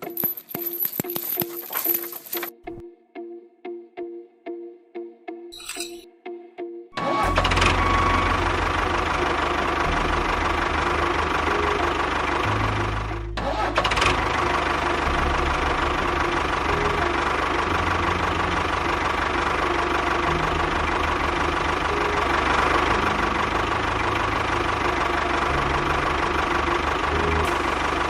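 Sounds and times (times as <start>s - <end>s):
engine knocking and chugging: 7.0s - 28.0s.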